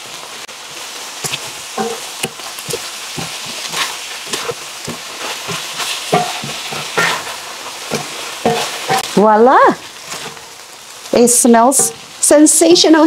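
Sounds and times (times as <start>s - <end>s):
chicken sizzling in a skillet: 0.0s - 13.0s
wooden spatula scraping a pan: 1.2s - 9.2s, 10.0s - 10.6s, 11.7s - 12.3s.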